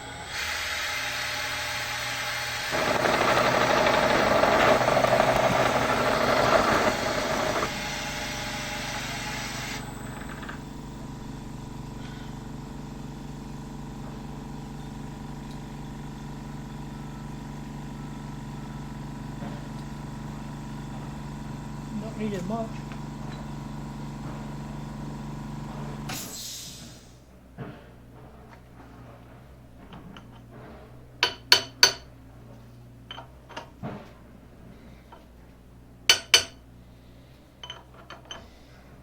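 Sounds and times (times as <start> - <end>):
milling machine cutting: 0.0 - 12.0
milling machine humming: 0.0 - 26.1.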